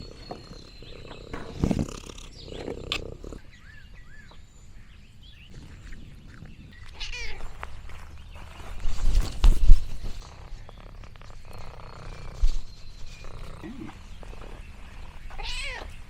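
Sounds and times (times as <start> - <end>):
cat rumbling: 0.0 - 4.2, 5.4 - 16.0
cat chirping: 5.5 - 7.4, 15.2 - 16.0.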